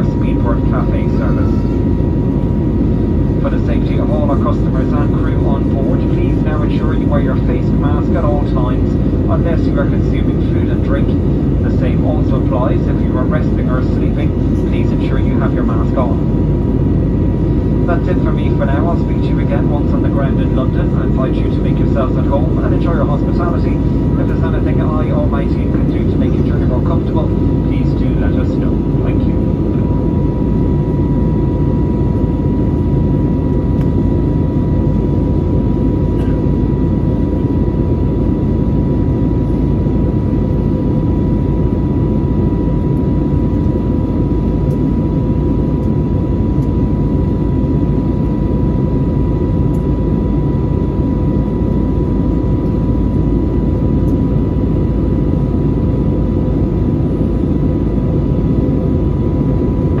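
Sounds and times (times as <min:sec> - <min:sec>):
aircraft cabin engine rumble: 0:00.0 - 1:00.0
high-pitched hum: 0:00.0 - 1:00.0.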